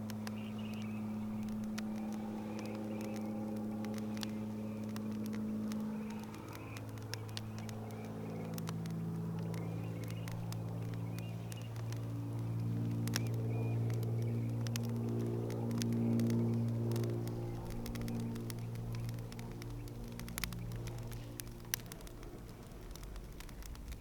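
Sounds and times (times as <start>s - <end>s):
campfire crackling and popping: 0.0s - 24.0s
steady low drone: 0.0s - 24.0s.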